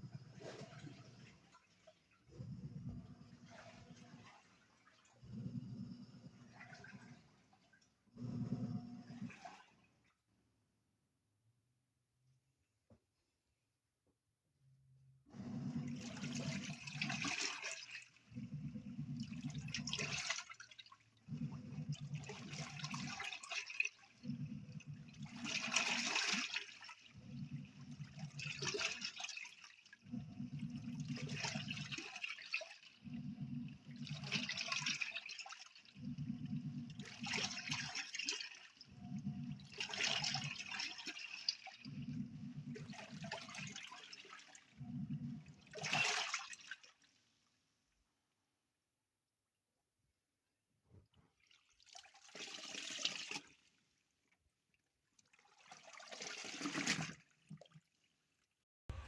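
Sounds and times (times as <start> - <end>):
washing machine motor hum: 0.0 - 9.9, 15.3 - 46.7
water swishing in tub: 0.0 - 10.3, 15.3 - 47.9, 51.0 - 59.0.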